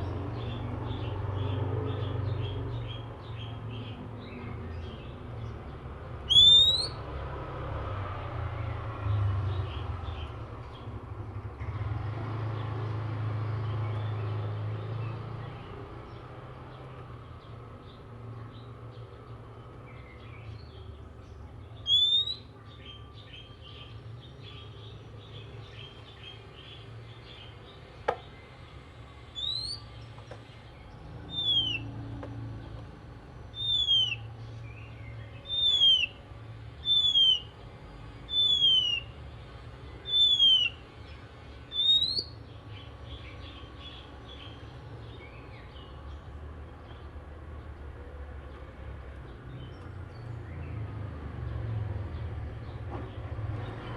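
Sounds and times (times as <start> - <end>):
bird singing whistled notes: 6.3 - 7.0, 21.8 - 27.6, 29.3 - 30.1, 31.3 - 32.0, 33.5 - 36.2, 36.8 - 37.6, 38.2 - 39.2, 39.9 - 45.9
faint bird twittering: 6.3 - 7.0, 19.9 - 32.0, 33.5 - 36.2, 36.8 - 39.2, 39.8 - 46.0.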